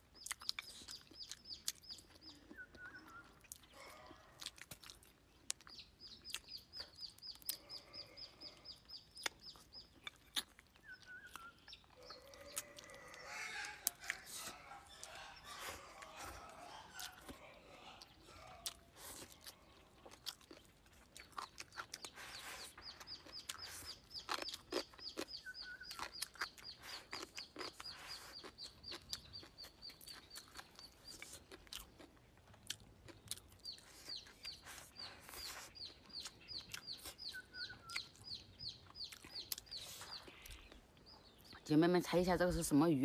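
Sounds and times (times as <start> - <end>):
chewing and crunching fried fish: 0.0 - 42.8
small bird calling: 5.6 - 32.1, 33.1 - 42.3
wet mouth clicks: 9.2 - 11.8.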